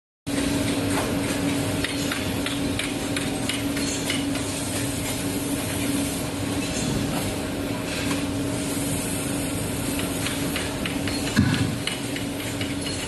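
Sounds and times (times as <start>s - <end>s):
workshop machinery hum: 0.3s - 13.0s
sharp clicks and ticks: 1.8s - 4.2s.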